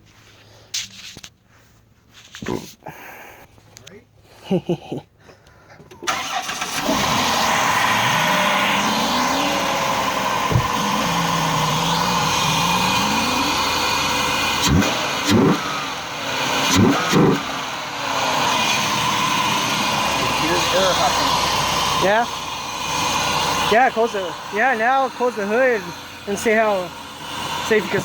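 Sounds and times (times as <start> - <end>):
car engine revving: 6.0 - 28.0.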